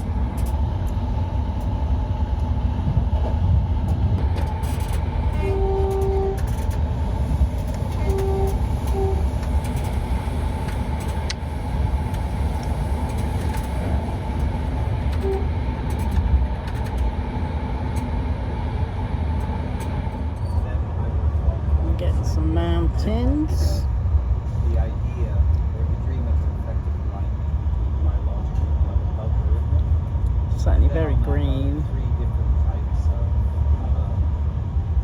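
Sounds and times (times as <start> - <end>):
moving train rumble: 0.0 - 35.0
train horn: 5.3 - 6.6, 7.9 - 9.5, 15.1 - 15.5.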